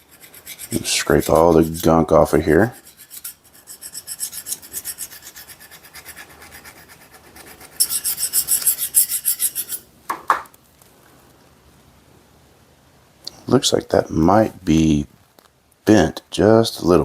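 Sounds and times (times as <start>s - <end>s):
scraper rasping on screwdriver: 2.8s - 9.8s.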